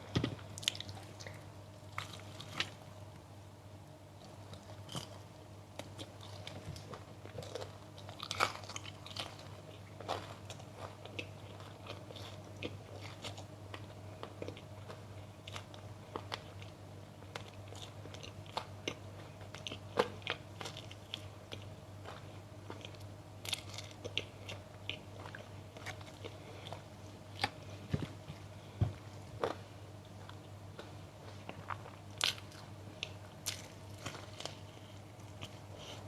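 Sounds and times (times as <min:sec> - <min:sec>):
steady low hum: 0:00.0 - 0:36.0
crunchy food chewing: 0:00.1 - 0:03.0, 0:04.2 - 0:36.0.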